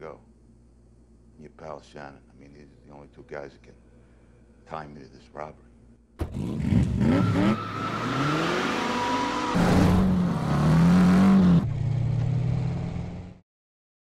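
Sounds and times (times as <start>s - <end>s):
car engine accelerating hard: 6.2s - 13.4s.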